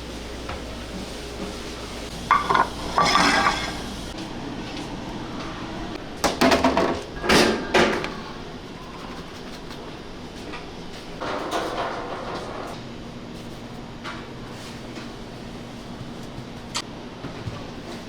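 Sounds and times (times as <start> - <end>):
utensils and dishes clinking: 0.5 - 4.2.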